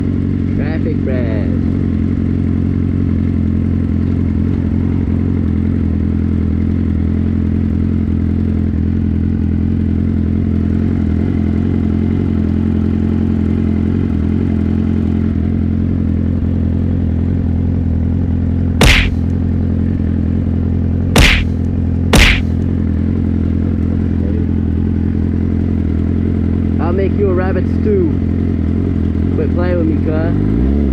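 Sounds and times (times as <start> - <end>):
motorcycle engine running: 0.0 - 30.9
sharp knocks: 18.8 - 19.2, 21.2 - 21.6, 22.2 - 22.6.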